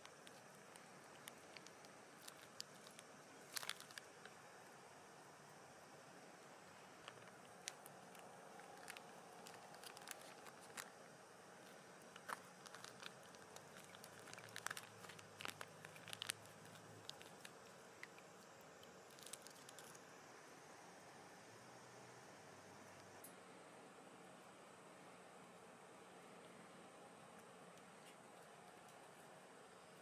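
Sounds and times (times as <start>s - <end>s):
faint crackles and clicks: 0.0s - 5.6s, 6.4s - 20.1s.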